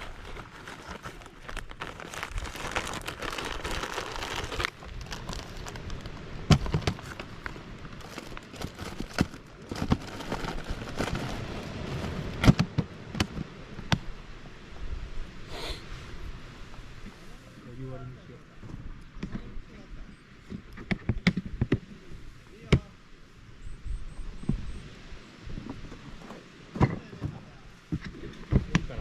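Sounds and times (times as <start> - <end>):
rustling hiss: 0.0 - 20.7.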